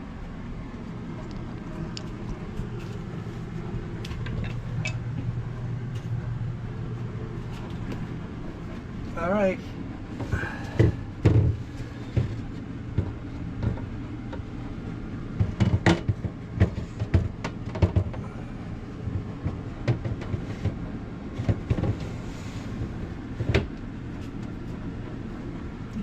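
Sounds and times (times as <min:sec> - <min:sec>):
steady low hum: 0:00.0 - 0:26.0
plastic shelf parts knocking: 0:10.7 - 0:14.4, 0:15.3 - 0:18.2, 0:19.1 - 0:20.8.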